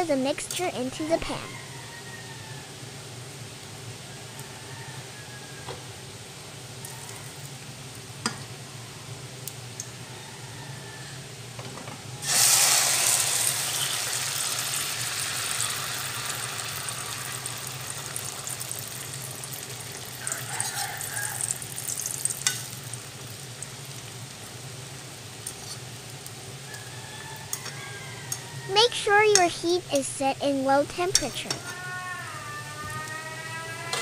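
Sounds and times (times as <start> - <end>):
oil sizzling in a frying pan: 5.8 - 8.7, 12.2 - 28.6.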